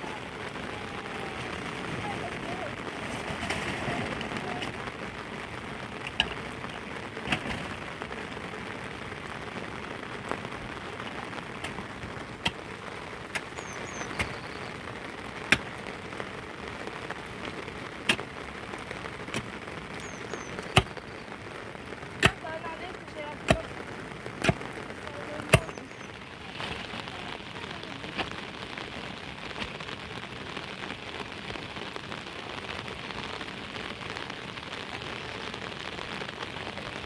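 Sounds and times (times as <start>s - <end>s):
steady rain falling: 0.0s - 37.0s.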